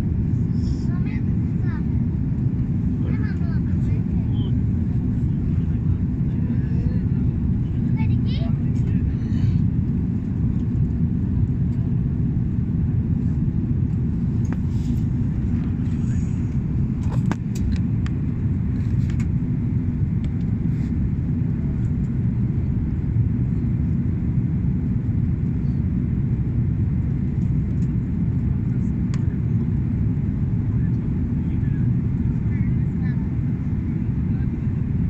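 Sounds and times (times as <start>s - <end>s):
airliner cabin rumble: 0.0s - 35.0s.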